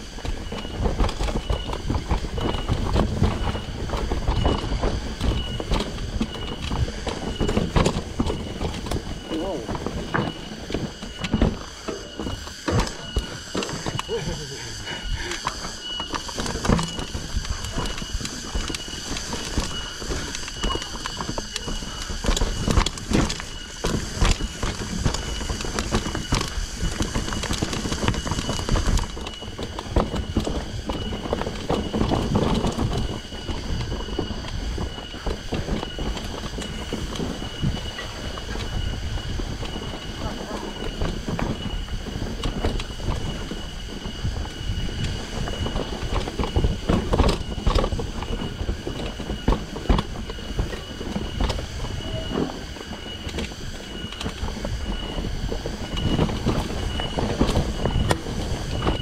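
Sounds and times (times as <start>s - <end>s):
mountain bike rattling and knocking: 0.0s - 59.0s
steady high tone: 6.2s - 22.7s.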